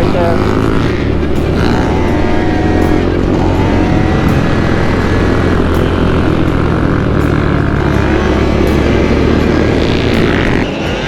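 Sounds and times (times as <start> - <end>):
road and wind noise: 0.0 - 11.0
small motorbike engine running: 0.0 - 11.0.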